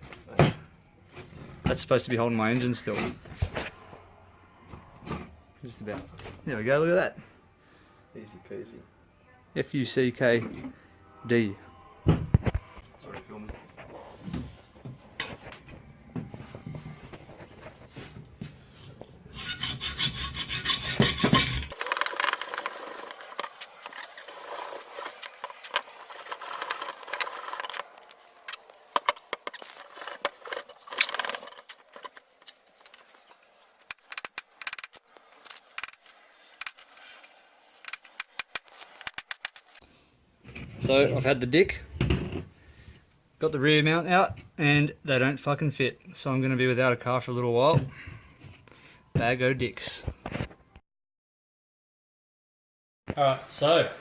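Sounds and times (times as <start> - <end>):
rubbing and scraping car parts: 17.1 - 39.8.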